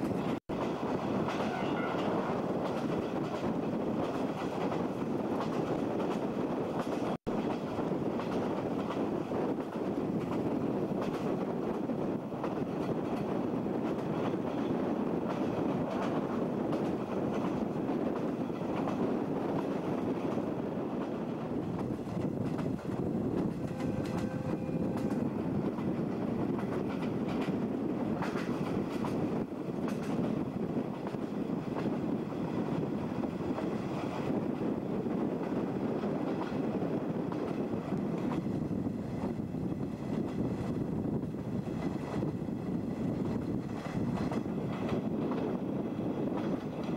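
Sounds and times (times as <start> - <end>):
wheels clicking over rail joints: 0.0 - 32.1
train running rumble: 0.0 - 46.9
wind: 0.0 - 46.9.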